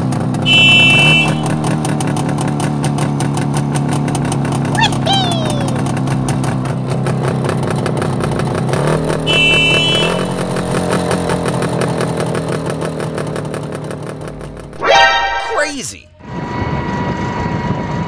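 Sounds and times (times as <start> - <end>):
short high tone: 0.5 - 1.8, 9.1 - 10.9, 14.8 - 16.1.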